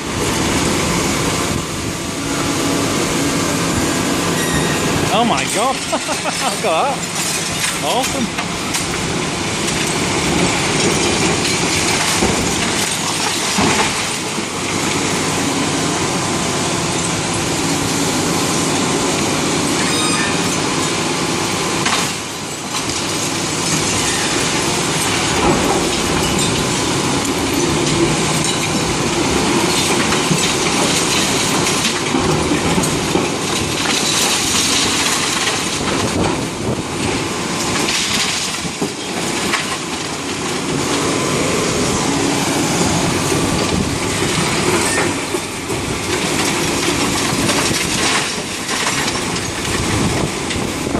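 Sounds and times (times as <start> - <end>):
concrete rubble clattering and crunching: 5.1 - 14.9, 21.8 - 42.0, 42.8 - 50.9.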